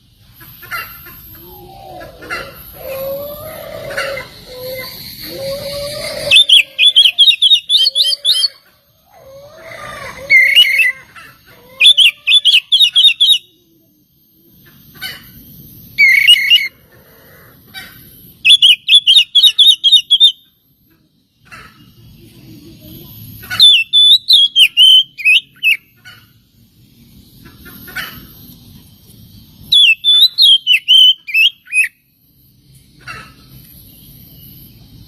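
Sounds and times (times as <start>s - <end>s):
lower gliding bird calls: 0.0s - 13.6s, 14.7s - 20.4s, 23.4s - 26.4s, 29.7s - 32.0s.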